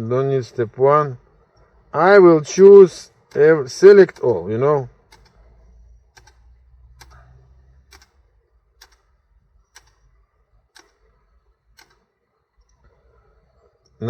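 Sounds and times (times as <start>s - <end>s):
faint low hum: 0.0s - 14.0s
computer mouse clicks: 5.1s - 5.5s, 6.1s - 8.2s, 8.8s - 9.1s, 9.7s - 10.0s, 10.7s - 12.9s.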